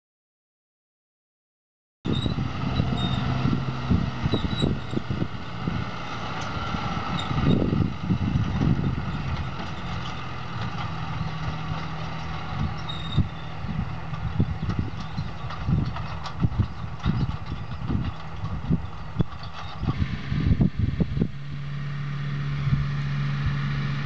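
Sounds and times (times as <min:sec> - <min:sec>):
tractor diesel engine running: 0:02.1 - 0:24.0
knocks and rattles: 0:08.3 - 0:20.0.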